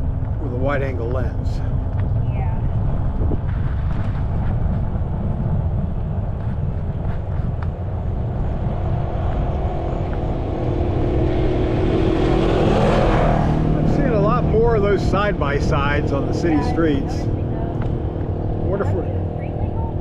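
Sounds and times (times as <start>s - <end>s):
motor vehicle engine approaching: 0.0s - 20.0s
wind rumbling on microphone: 0.0s - 20.0s
bicycle tyre noise: 1.6s - 10.6s.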